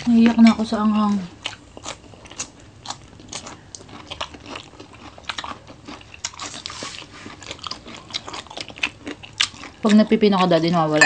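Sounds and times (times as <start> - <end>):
cucumber crunching and chewing: 0.1 - 10.8.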